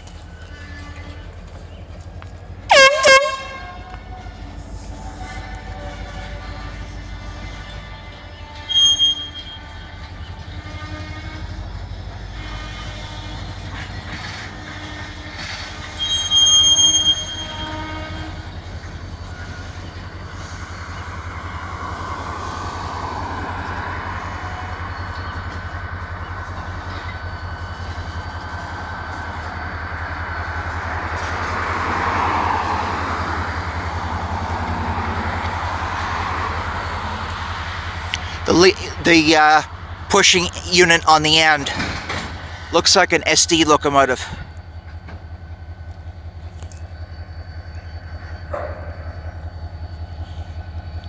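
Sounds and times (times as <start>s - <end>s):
freight train cars rolling: 0.0s - 51.0s
high-pitched wheel squeal: 2.7s - 11.5s, 14.8s - 29.0s.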